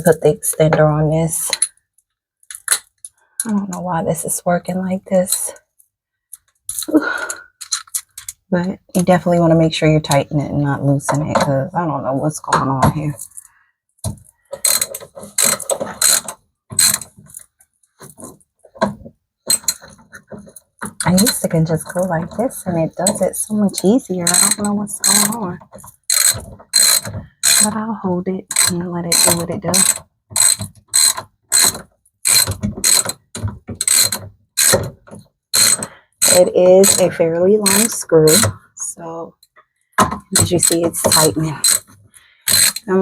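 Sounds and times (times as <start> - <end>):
ratchet wrench clicking: 14.6 - 17.0, 24.2 - 25.4, 26.0 - 27.7, 28.5 - 33.1, 33.8 - 34.8, 35.6 - 37.1, 40.4 - 41.8, 42.5 - 42.9.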